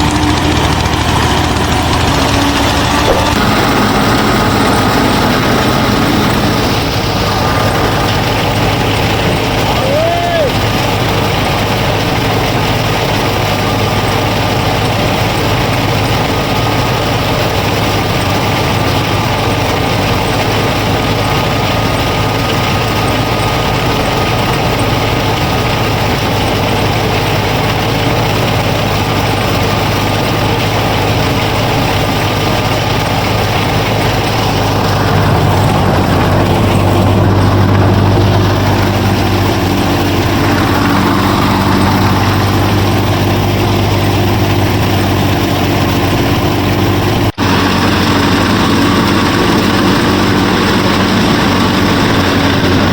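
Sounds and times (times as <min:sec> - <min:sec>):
motor humming: 0:00.0 - 0:52.9.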